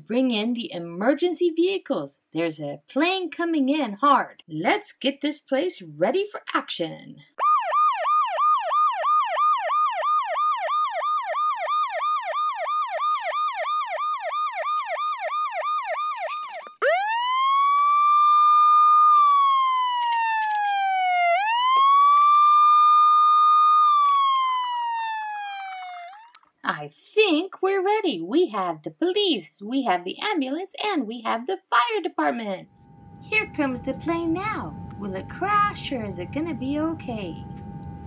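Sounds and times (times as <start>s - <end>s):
emergency siren yelp and wail: 7.4s - 26.6s, 32.8s - 38.0s.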